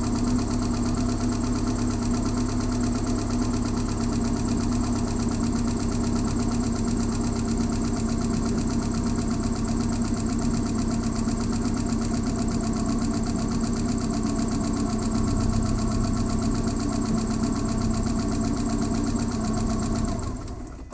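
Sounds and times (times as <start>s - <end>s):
car engine idling: 0.0s - 20.9s.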